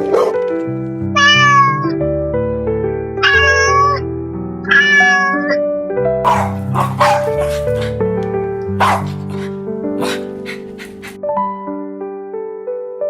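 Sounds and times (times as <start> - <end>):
cat meowing: 1.2 - 1.9, 3.2 - 4.0, 4.7 - 5.6, 6.3 - 7.9, 8.8 - 11.2
background music: 6.3 - 11.6.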